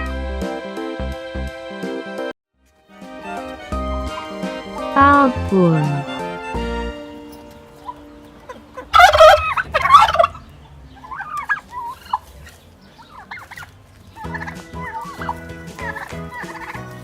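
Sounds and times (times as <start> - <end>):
turkeys gobbling: 7.3 - 17.0.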